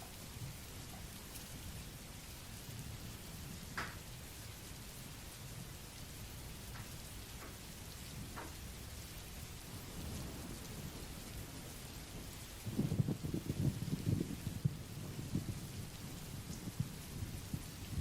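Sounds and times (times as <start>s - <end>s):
steady rain: 0.0s - 18.0s
thunder rumbling: 9.6s - 18.0s.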